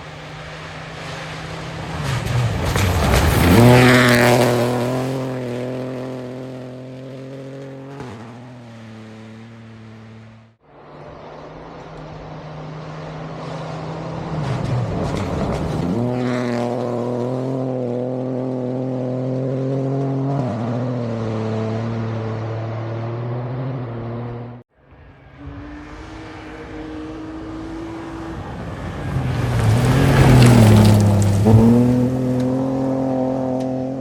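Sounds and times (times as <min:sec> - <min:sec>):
rally car passing close by: 0:00.0 - 0:34.0
rally car engine changing gear: 0:00.1 - 0:10.4, 0:27.0 - 0:34.0.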